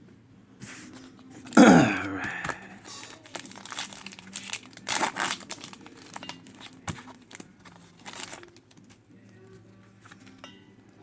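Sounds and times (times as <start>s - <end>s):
foil wrapper tearing and crinkling: 2.4s - 8.8s.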